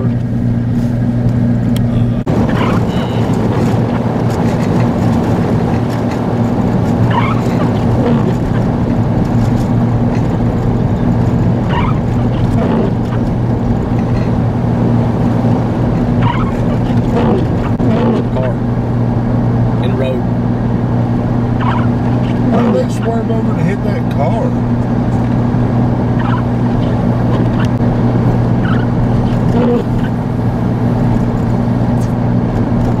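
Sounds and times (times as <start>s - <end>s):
car interior drone: 0.0s - 33.0s
short rising squeak: 2.5s - 4.0s, 7.1s - 8.6s, 11.7s - 13.2s, 16.2s - 18.3s, 21.6s - 22.4s, 26.2s - 27.6s, 28.6s - 30.2s.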